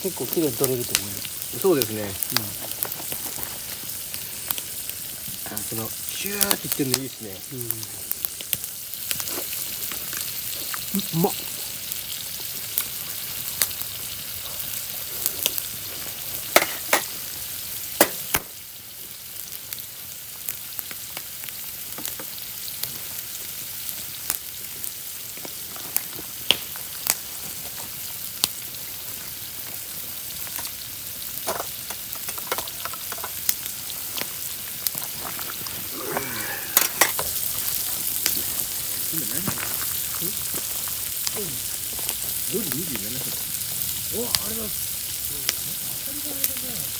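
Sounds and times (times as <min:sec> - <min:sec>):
food sizzling in hot oil: 0:00.0 - 0:46.9
oil popping and spitting: 0:09.0 - 0:12.0, 0:34.9 - 0:46.0.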